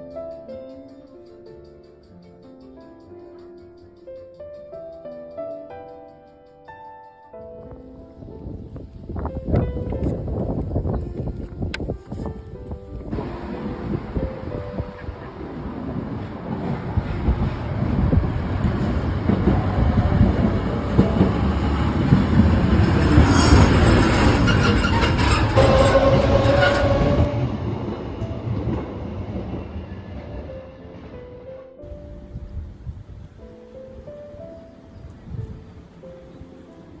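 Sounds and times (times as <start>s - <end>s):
train rumbling past: 12.7s - 37.0s
train wheel squeal: 13.2s - 31.0s.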